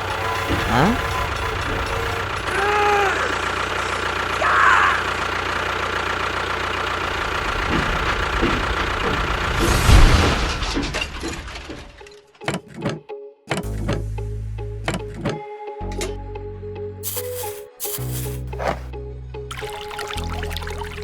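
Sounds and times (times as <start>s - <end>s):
small motor humming: 0.0s - 4.4s.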